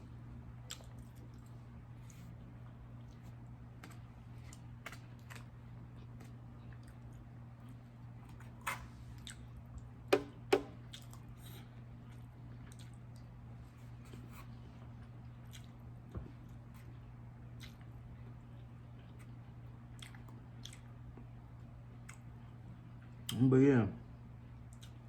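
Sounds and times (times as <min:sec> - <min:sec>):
low steady hum: 0:00.0 - 0:25.0
wet chewing sounds: 0:00.6 - 0:09.9, 0:10.8 - 0:14.3, 0:15.0 - 0:21.3, 0:24.6 - 0:25.0.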